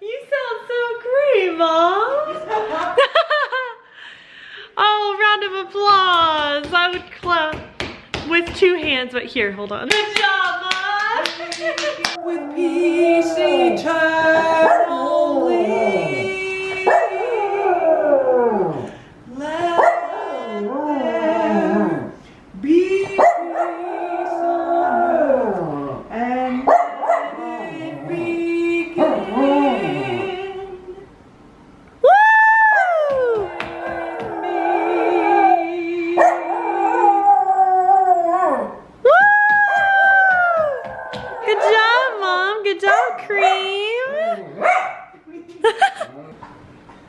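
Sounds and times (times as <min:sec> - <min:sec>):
woman singing: 0:12.2 - 0:17.4, 0:22.6 - 0:23.8, 0:27.3 - 0:31.1, 0:33.0 - 0:36.6
dog howling: 0:12.2 - 0:18.9, 0:23.2 - 0:28.1, 0:29.0 - 0:30.5, 0:32.1 - 0:42.3.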